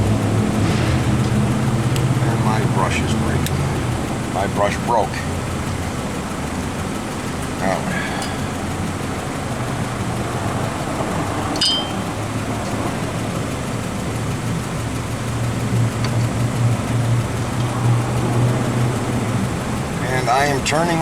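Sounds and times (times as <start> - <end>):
vehicle engine hum: 0.0 - 21.0
light metallic clink: 8.2 - 8.6, 11.5 - 12.2.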